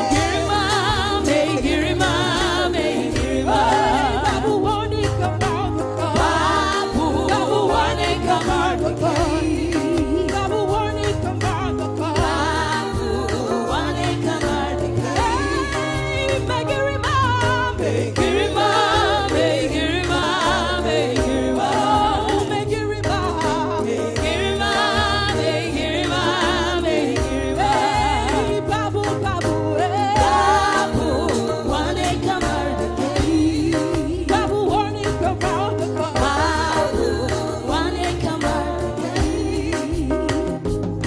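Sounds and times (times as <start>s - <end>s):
band with pulsing bass: 0.0s - 41.0s
group singing gospel: 0.0s - 41.0s.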